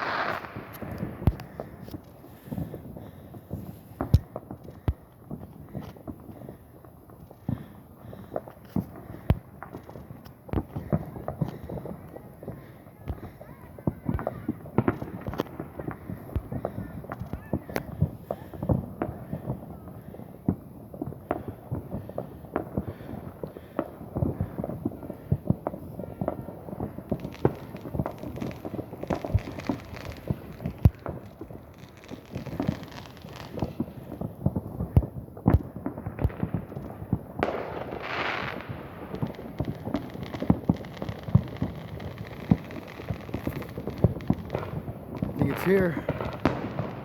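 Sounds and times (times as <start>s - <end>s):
firework hiss: 0.0s - 2.7s
fireworks bangs and pops: 0.0s - 47.0s.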